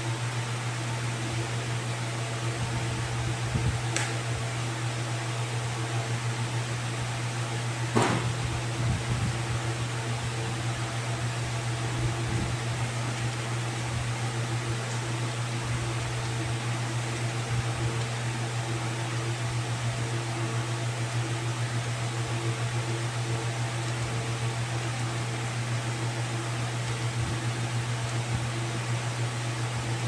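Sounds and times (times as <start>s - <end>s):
machine hum: 7.0s - 19.3s.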